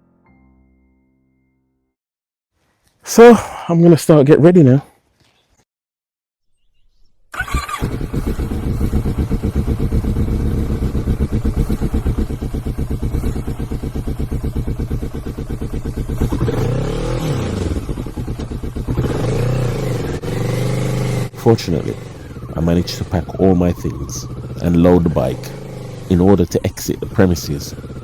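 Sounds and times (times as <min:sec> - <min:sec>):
motorcycle engine revving: 0:07.4 - 0:28.0.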